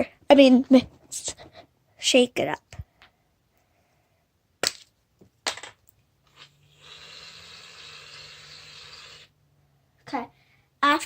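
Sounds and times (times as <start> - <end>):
aerosol can hissing: 6.4 - 9.3.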